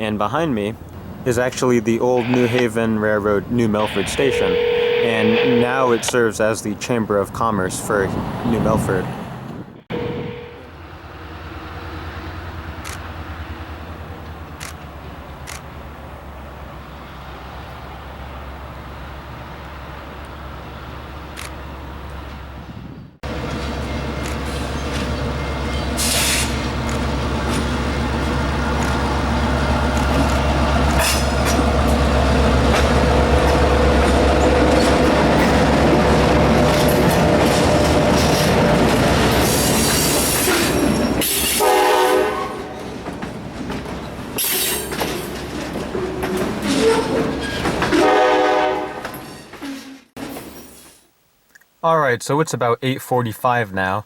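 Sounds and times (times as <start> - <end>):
diesel locomotive engine droning: 0.7 - 6.8, 9.0 - 49.3
train horn blast: 3.9 - 6.0, 9.9 - 10.8, 41.5 - 42.8, 47.9 - 49.1
railcar wheels squealing on rails: 23.3 - 28.4, 30.0 - 50.9.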